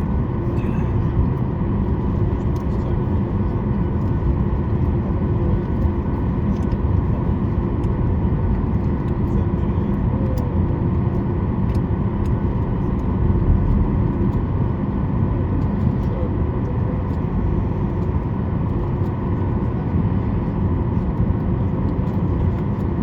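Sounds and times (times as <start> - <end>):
jet engines idling rumble: 0.0 - 23.0.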